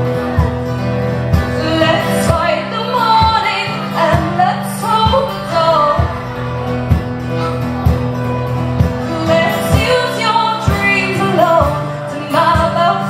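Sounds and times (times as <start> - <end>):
sustained instrumental backing: 0.0 - 12.9
women singing: 1.5 - 6.2, 9.0 - 13.0.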